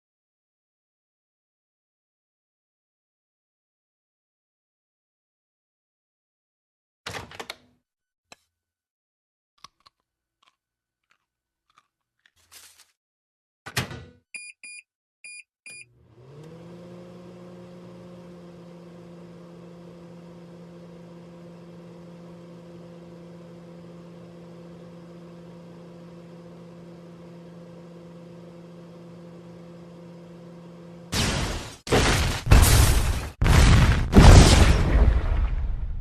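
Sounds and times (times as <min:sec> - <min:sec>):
microwave keypad beeps: 0:14.4 - 0:15.9
microwave oven humming: 0:15.7 - 0:31.7.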